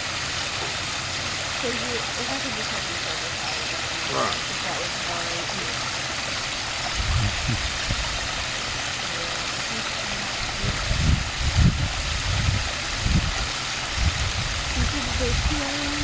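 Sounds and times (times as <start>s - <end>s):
running water rushing: 0.0s - 16.0s
low rumbles: 6.6s - 8.5s.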